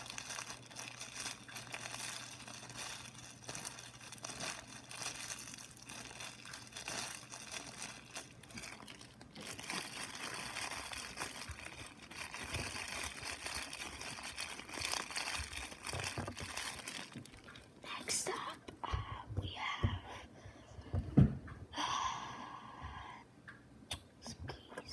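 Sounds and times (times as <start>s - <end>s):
crinkling material handled close: 0.0s - 18.8s.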